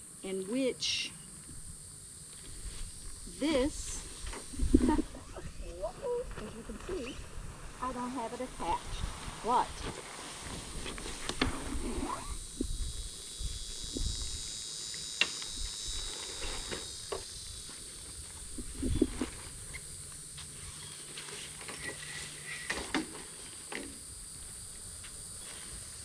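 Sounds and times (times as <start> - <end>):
outdoor hiss: 0.0 - 26.0.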